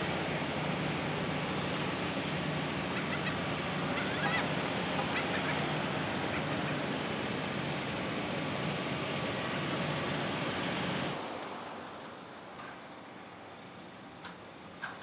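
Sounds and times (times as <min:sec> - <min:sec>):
rushing outdoor background noise: 0:00.0 - 0:15.0
short bird calls: 0:02.9 - 0:05.7.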